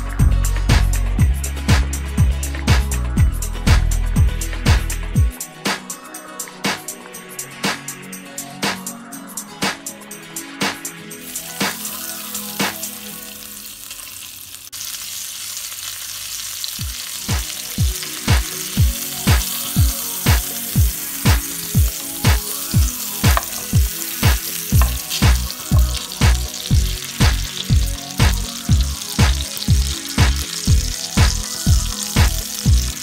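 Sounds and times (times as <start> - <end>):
background music with beat: 0.0 - 13.2, 16.8 - 33.0
duck breast sizzling: 11.2 - 33.0.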